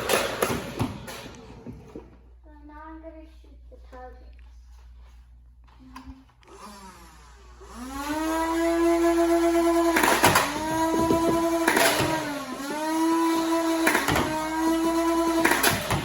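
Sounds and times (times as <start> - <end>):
electric motor whine: 6.4 - 16.0.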